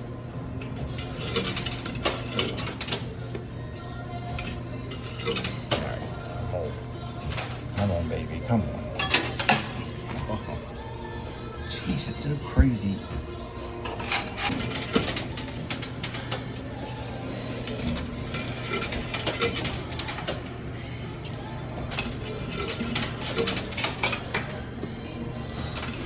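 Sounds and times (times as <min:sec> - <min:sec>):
arcade machine low hum: 0:00.0 - 0:26.0
coins clinking and clattering: 0:00.6 - 0:03.2, 0:04.4 - 0:06.4, 0:07.2 - 0:08.1, 0:09.0 - 0:09.8, 0:13.9 - 0:16.5, 0:17.6 - 0:20.5, 0:21.3 - 0:26.0.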